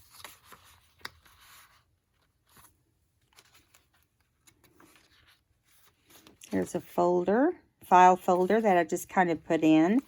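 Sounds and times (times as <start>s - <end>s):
paper rustling and crinkling: 0.0s - 6.9s.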